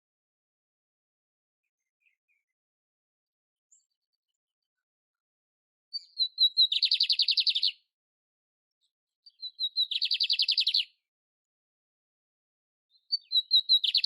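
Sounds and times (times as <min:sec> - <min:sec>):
canary singing high notes and trill: 0:05.9 - 0:07.8.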